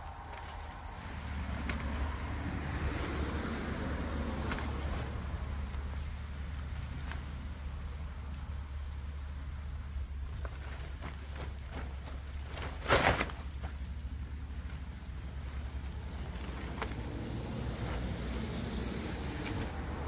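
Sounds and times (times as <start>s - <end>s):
vehicle passing: 0.0s - 10.4s, 14.0s - 20.0s
insects trilling: 0.0s - 20.0s
road traffic rumble: 0.0s - 20.0s.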